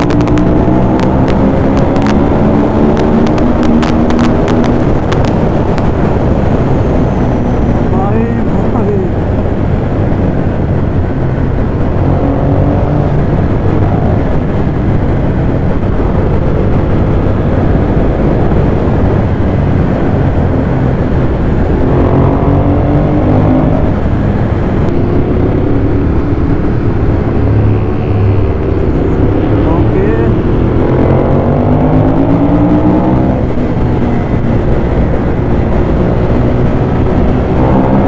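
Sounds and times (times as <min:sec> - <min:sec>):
motorcycle engine revving: 0:00.0 - 0:38.0
wind rush: 0:00.0 - 0:38.0.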